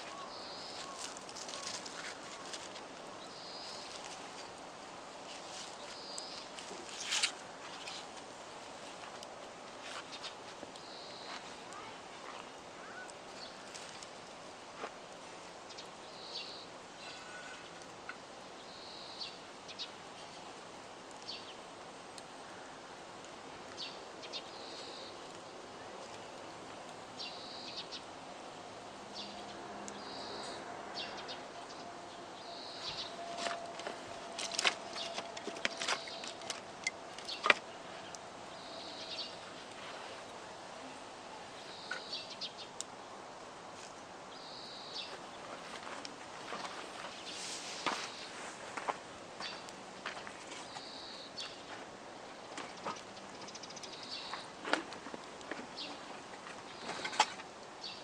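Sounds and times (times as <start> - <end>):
campfire crackling and popping: 0.0 - 17.0, 17.6 - 18.4, 19.3 - 27.2, 33.1 - 40.4, 52.7 - 57.8
bird short high call: 16.5 - 17.6.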